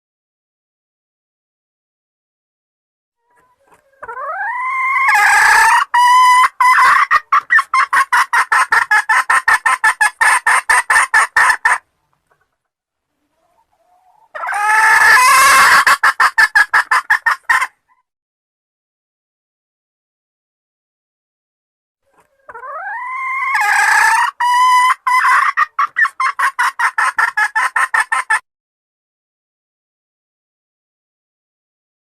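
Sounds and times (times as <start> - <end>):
junglefowl crowing: 3.9 - 9.4, 13.9 - 18.0, 22.4 - 28.4.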